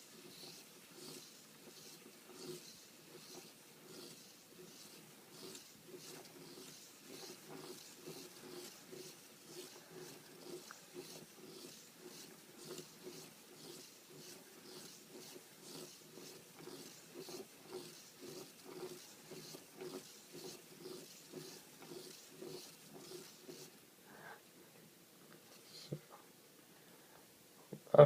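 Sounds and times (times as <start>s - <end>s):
flapping-wing mechanism cycling: 0.0s - 23.8s.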